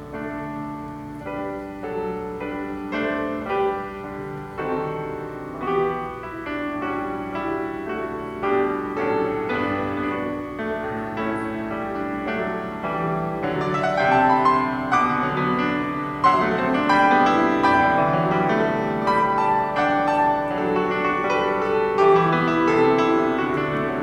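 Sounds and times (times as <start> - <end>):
piano piece: 0.0 - 24.0.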